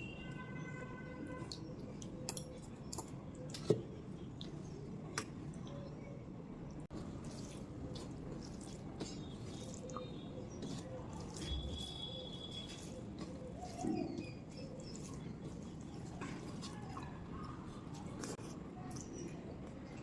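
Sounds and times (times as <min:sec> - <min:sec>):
moist clicks and smacks: 0:01.4 - 0:05.8
wet chewing: 0:06.9 - 0:20.0.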